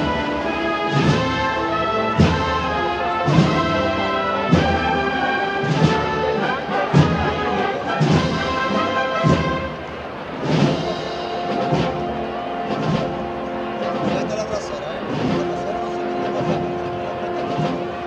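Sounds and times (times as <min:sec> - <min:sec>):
wind band playing slow march: 0:00.0 - 0:18.0.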